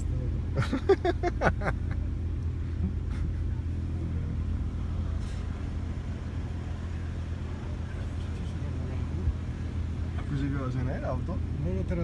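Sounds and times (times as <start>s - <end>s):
car engine drone from inside: 0.0s - 12.0s.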